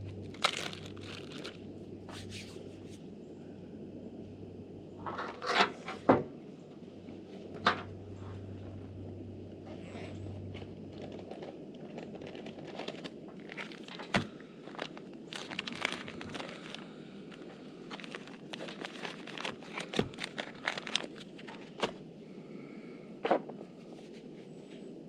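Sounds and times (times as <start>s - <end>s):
crinkling: 0.0s - 3.0s, 7.2s - 22.2s.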